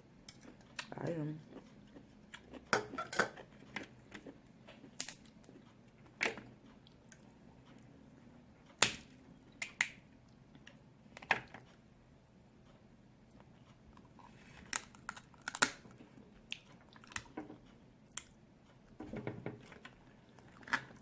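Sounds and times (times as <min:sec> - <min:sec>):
person chewing: 0:00.3 - 0:08.0, 0:13.4 - 0:18.4, 0:19.6 - 0:21.0
crab shells cracking: 0:05.0 - 0:05.3, 0:14.7 - 0:15.9.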